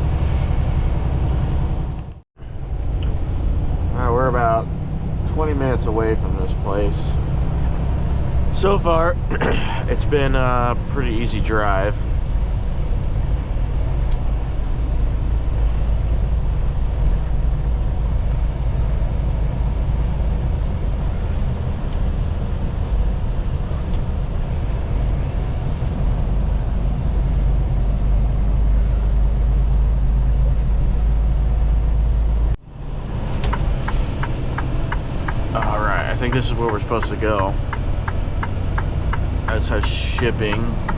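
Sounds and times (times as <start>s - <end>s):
road and tyre noise: 0.0s - 40.9s
truck engine drone: 0.0s - 40.9s
sharp ticks: 33.4s - 40.9s.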